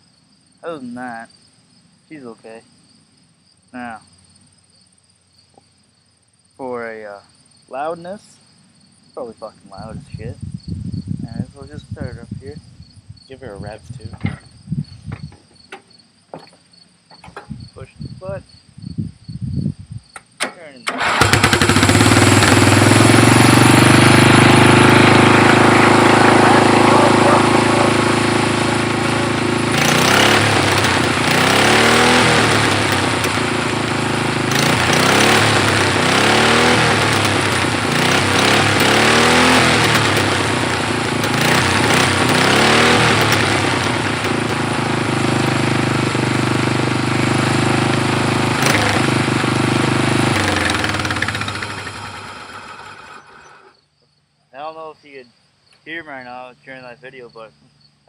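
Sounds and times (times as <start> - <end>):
lawn tractor engine revving: 20.8 - 53.8.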